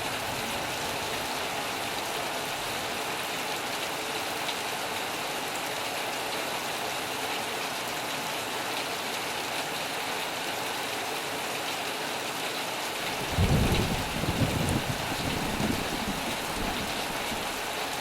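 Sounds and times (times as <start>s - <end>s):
heavy rain on a metal roof: 0.0s - 18.0s
low rumble of thunder: 13.1s - 17.8s.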